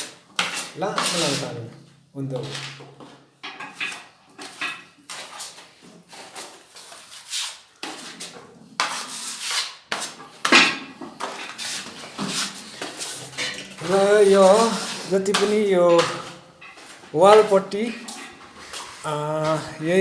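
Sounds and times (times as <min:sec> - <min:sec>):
hard objects knocking and scraping: 0:02.4 - 0:05.0, 0:09.9 - 0:20.0.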